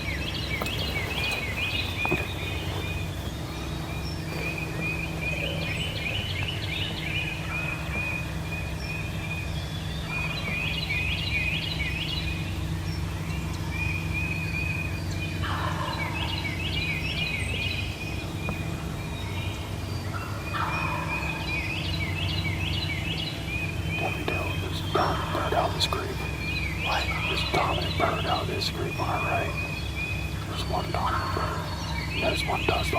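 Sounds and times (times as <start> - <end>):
turkeys gobbling: 15.4 - 16.4, 20.1 - 21.5, 24.0 - 29.7, 30.3 - 32.9.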